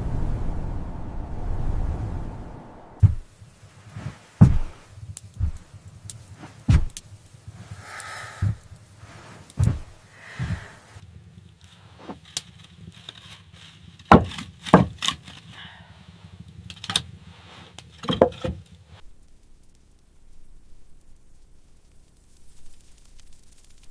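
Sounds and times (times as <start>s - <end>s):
faint steady hum: 0.0s - 11.1s, 19.0s - 23.9s
wooden knocks and thuds: 3.0s - 3.3s, 4.4s - 4.8s, 6.7s - 7.0s.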